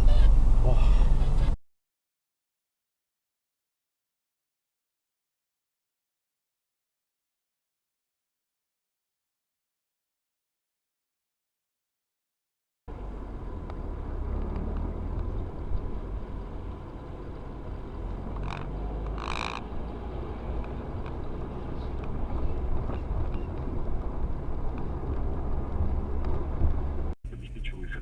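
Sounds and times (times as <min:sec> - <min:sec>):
road noise: 0:00.0 - 0:01.6, 0:12.9 - 0:28.0
vehicle engine rumble: 0:00.0 - 0:01.6, 0:12.9 - 0:28.0.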